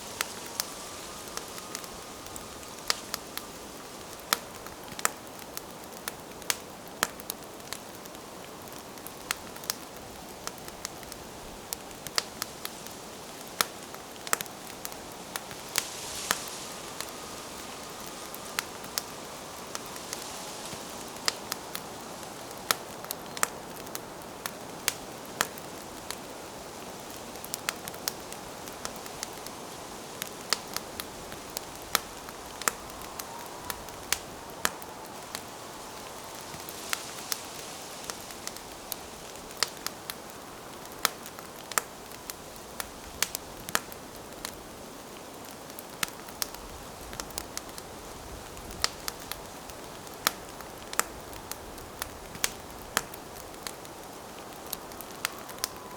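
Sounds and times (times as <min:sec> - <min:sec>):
fire hissing: 0:00.0 - 0:43.3
campfire crackling and popping: 0:00.0 - 0:55.9.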